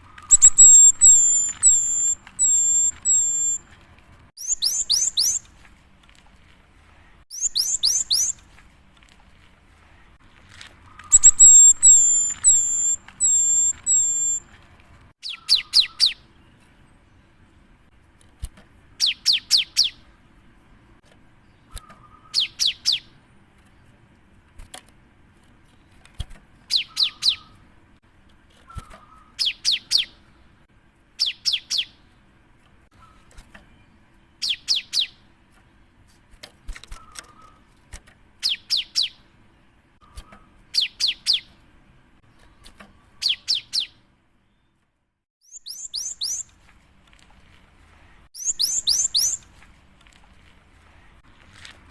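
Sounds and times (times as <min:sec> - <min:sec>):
bird singing high whistled notes: 0:00.1 - 0:03.7, 0:04.4 - 0:05.4, 0:07.3 - 0:08.4, 0:11.0 - 0:14.5, 0:15.2 - 0:16.2, 0:26.7 - 0:27.6, 0:45.4 - 0:46.5, 0:48.4 - 0:49.4.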